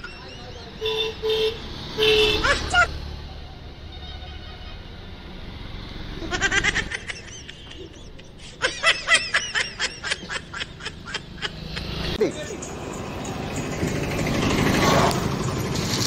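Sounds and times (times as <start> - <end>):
vehicle engine humming: 0.0 - 16.0
person laughing: 2.4 - 3.0, 6.2 - 12.1.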